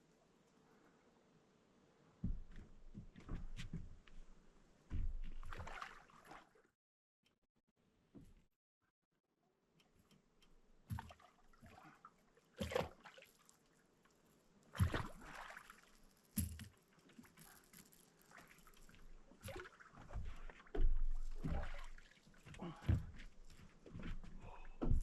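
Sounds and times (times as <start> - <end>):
water splashing: 5.4 - 6.6, 10.9 - 13.7, 14.7 - 22.8.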